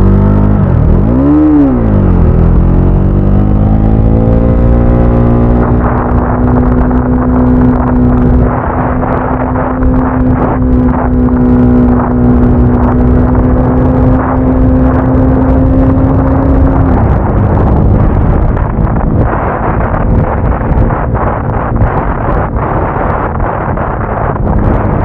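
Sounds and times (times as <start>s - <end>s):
motorcycle engine cruising: 0.0s - 25.0s
wind buffeting microphone: 0.0s - 25.0s.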